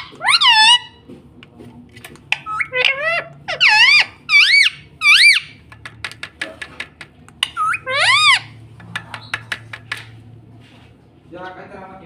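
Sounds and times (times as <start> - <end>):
parrot squawking: 0.0 - 1.0, 2.2 - 5.7, 7.3 - 9.6.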